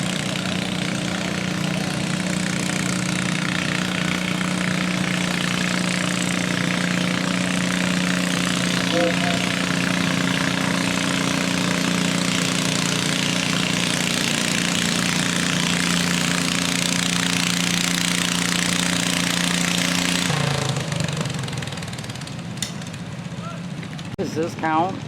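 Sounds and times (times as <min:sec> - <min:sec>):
garden tractor engine revving: 0:00.0 - 0:23.1.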